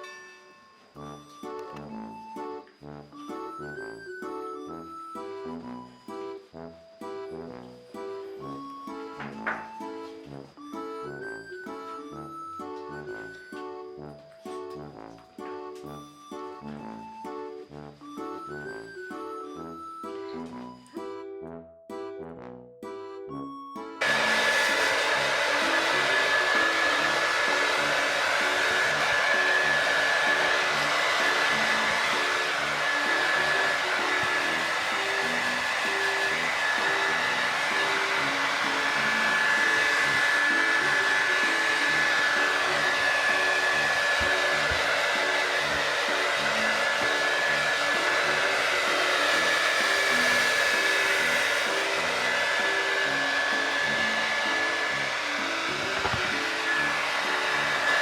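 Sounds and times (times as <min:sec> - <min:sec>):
soft background music: 0:00.9 - 0:58.0
hair dryer blowing: 0:24.0 - 0:58.0.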